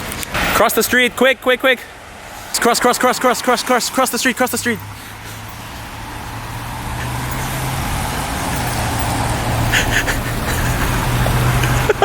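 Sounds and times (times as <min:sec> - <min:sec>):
vehicle approaching: 0:00.0 - 0:12.0
low engine hum: 0:03.7 - 0:12.0.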